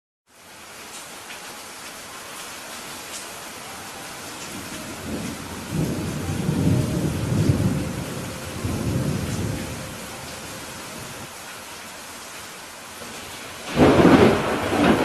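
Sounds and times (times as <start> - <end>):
steady rain: 0.3 - 15.0
rolling thunder: 4.5 - 11.3, 13.6 - 15.0.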